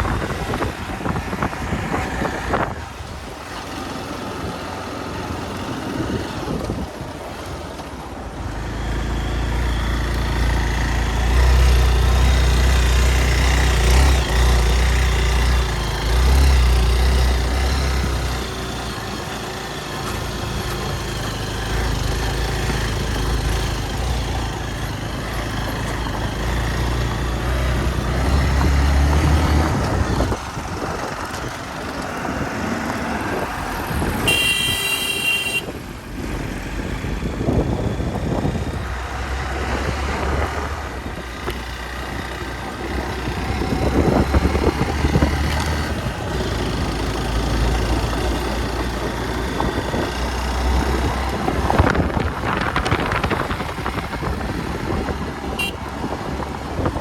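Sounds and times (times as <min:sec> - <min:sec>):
wind rushing over microphone: 0:00.0 - 0:07.5, 0:21.3 - 0:34.5, 0:35.6 - 0:57.0
short horn beep: 0:34.2 - 0:35.7, 0:55.5 - 0:55.8.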